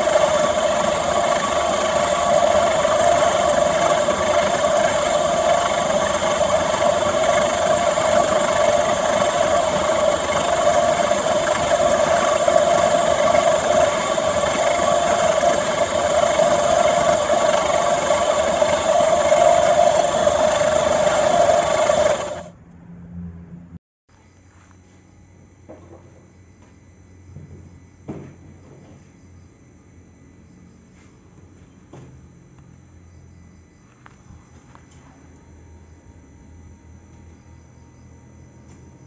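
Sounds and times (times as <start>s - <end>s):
electric motor humming: 0.0s - 22.5s.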